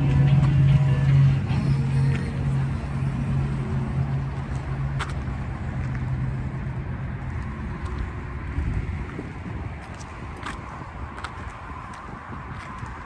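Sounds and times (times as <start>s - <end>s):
truck engine idling: 0.0s - 6.8s.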